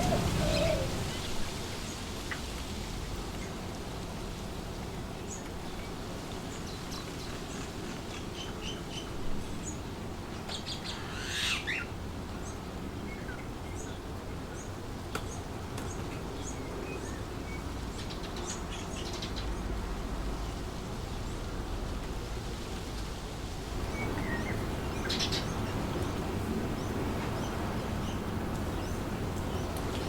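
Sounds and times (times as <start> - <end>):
birds chirping: 0.0 - 2.4, 23.8 - 30.0
wind blowing through trees: 0.0 - 30.0.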